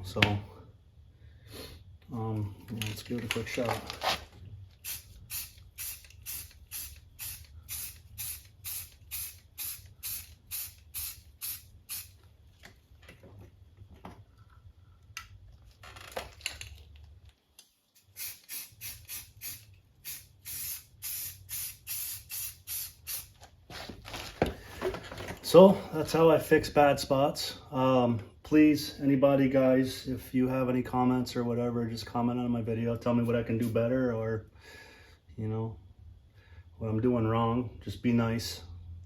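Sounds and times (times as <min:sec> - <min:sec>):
aerosol spray hissing: 0:04.8 - 0:12.2, 0:18.0 - 0:23.3.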